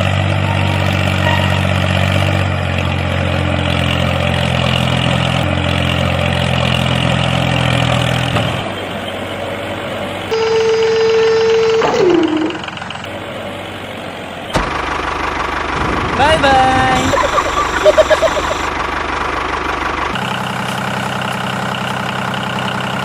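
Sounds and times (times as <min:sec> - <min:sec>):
tractor engine running: 0:00.0 - 0:23.0
horn-like tone falling in pitch: 0:10.3 - 0:12.8.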